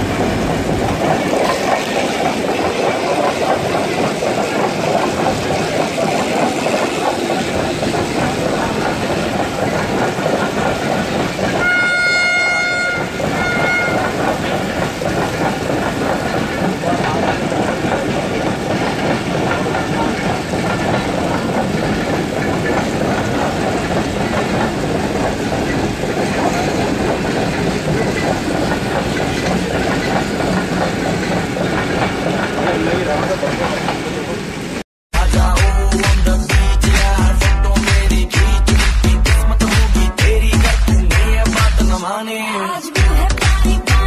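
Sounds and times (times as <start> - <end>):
wheels clattering over rail joints: 0.0 - 34.8
train coaches rumbling past: 0.0 - 42.0
train horn: 11.6 - 14.3.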